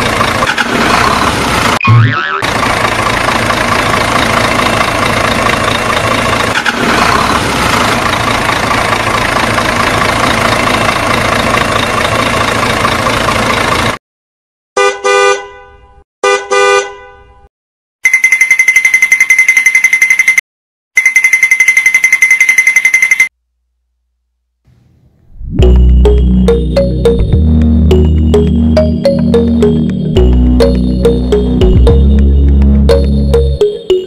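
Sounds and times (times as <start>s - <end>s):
engine running: 0.0s - 14.0s, 24.7s - 34.0s.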